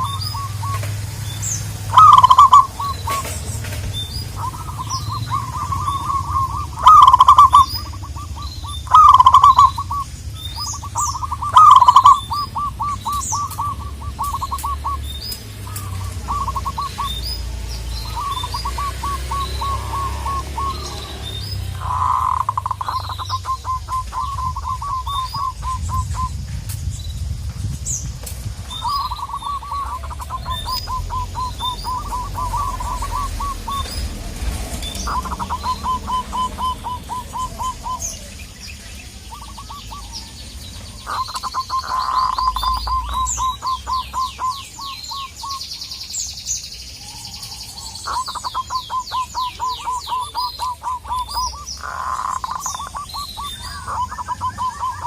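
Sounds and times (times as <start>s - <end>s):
dove staccato cooing: 0.0s - 26.5s, 28.6s - 45.6s, 47.1s - 55.0s
small birds chirping: 0.0s - 55.0s
low rumble: 2.6s - 41.4s.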